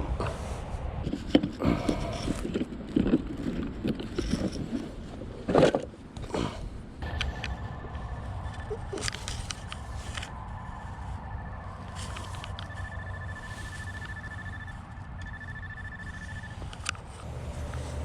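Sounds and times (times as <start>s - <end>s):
clicks and scrapes: 1.0s - 6.3s
rapid pulsing high beep: 7.0s - 9.0s, 10.5s - 16.7s.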